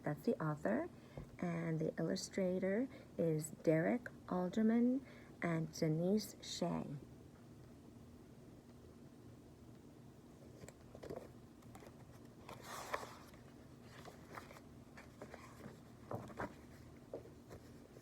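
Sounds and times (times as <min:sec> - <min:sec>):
low room hum: 0:00.0 - 0:18.0
paper page rustle: 0:10.6 - 0:18.0.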